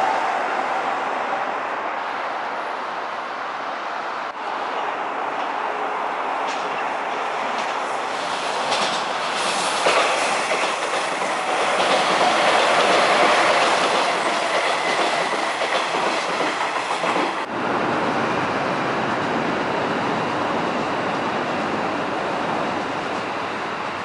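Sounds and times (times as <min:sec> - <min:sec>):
train running on elevated track: 0:00.0 - 0:24.0
wheels clacking over rail joints: 0:06.4 - 0:17.5.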